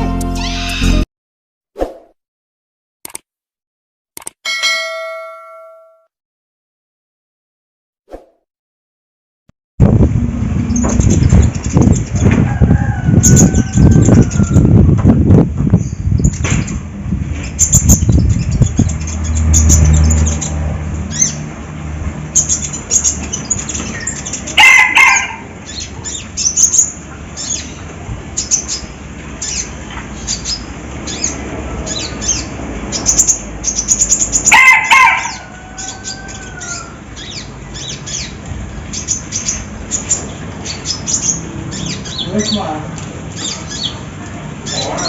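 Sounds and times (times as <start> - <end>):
songbird chirping and trilling: 0.0 - 1.1, 10.6 - 14.8, 17.4 - 21.5, 22.3 - 45.0.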